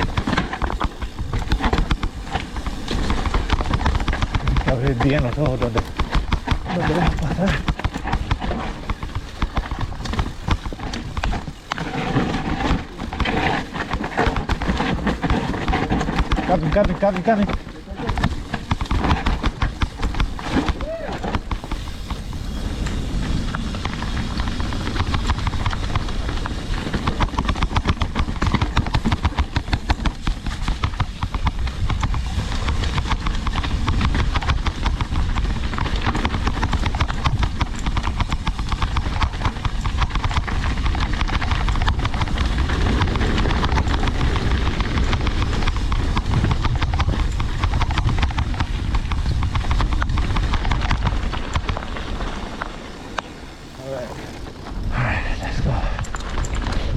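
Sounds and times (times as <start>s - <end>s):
mountain bike clattering: 0.0s - 56.9s
wind noise on microphone: 17.5s - 56.9s.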